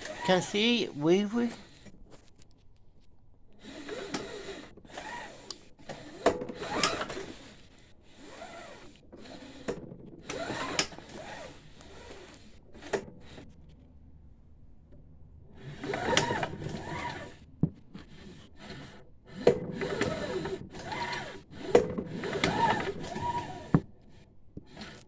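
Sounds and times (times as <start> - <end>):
engine turned over by hand: 15.8 - 17.4, 19.4 - 23.6.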